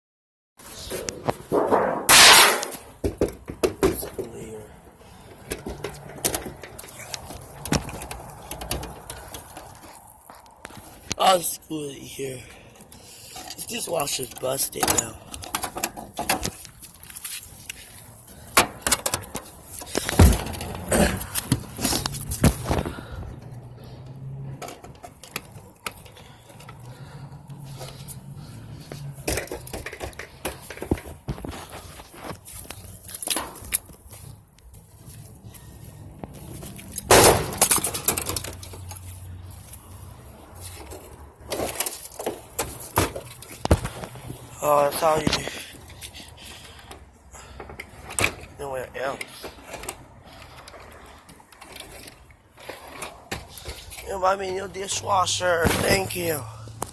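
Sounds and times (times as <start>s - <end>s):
dishwasher being broken up: 1.6s - 2.8s.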